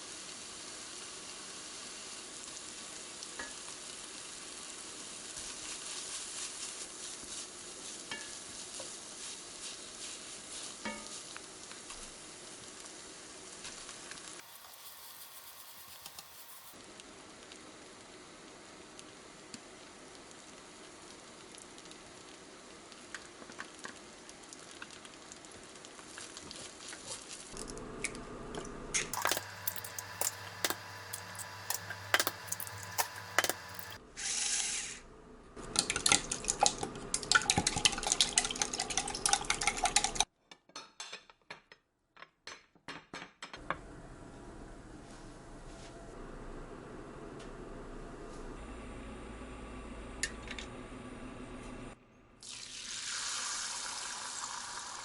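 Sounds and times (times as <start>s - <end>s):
food sizzling in a frying pan: 0.0s - 27.6s, 29.1s - 35.0s, 52.4s - 55.0s
metal utensil clinking and scraping: 14.4s - 16.8s, 29.1s - 34.0s.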